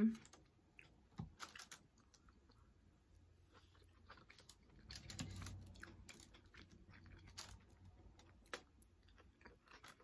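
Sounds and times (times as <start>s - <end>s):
chewing crunchy food: 0.0s - 10.0s.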